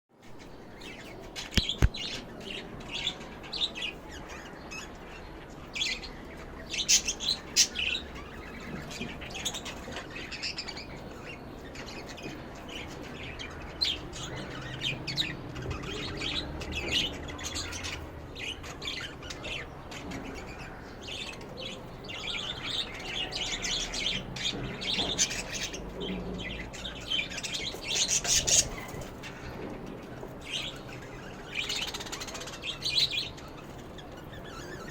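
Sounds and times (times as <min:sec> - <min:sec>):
lovebirds chirping and chattering: 0:00.2 - 0:34.9.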